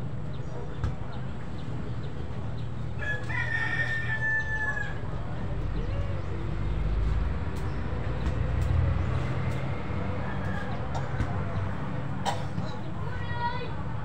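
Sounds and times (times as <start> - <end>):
rooster crowing: 3.0 - 5.1.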